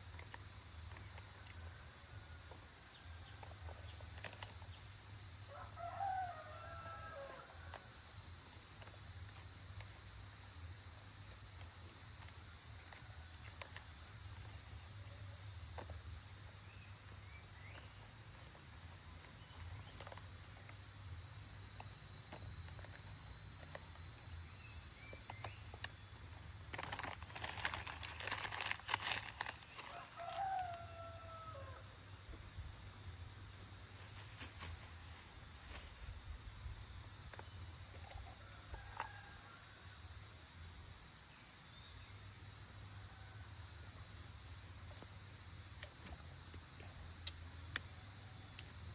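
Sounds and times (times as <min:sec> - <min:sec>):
crickets chirring: 0:00.0 - 0:48.9
rustling and clatter: 0:26.6 - 0:30.0, 0:33.8 - 0:36.1.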